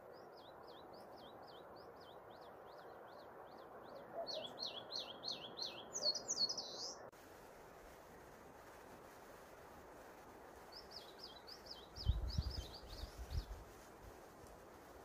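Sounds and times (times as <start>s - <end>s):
steady background hiss: 0.0s - 15.0s
songbird whistling: 4.2s - 7.0s.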